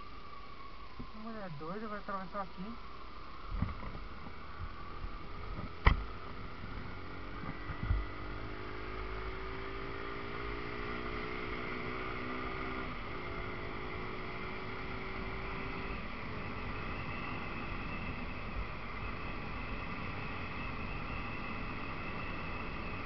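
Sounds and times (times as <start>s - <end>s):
small thump: 3.5s - 4.0s, 5.6s - 6.1s
motorcycle engine running: 3.6s - 20.5s.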